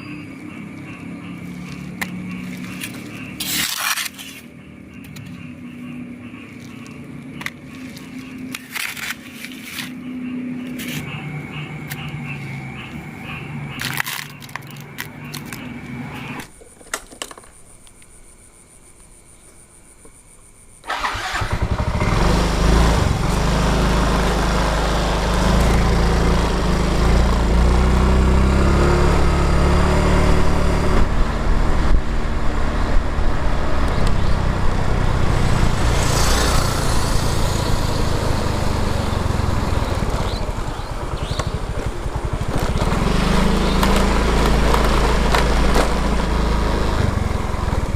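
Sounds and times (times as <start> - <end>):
engine starting and running: 20.8 - 32.5, 33.7 - 47.9.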